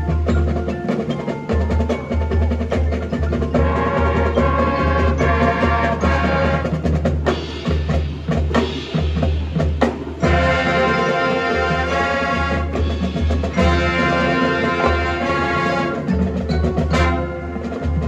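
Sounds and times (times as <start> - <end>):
drums and percussion: 0.0 - 18.0
marching band playing: 0.0 - 18.0
brass and woodwinds: 3.3 - 7.4, 10.2 - 18.0.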